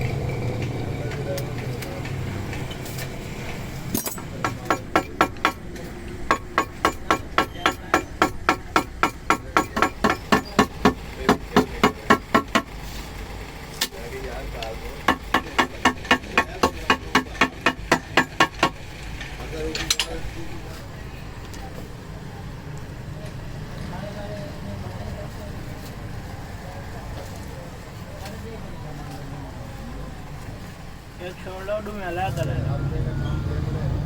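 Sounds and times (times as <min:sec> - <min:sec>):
hammer striking metal: 0:03.9 - 0:12.8, 0:15.0 - 0:18.8.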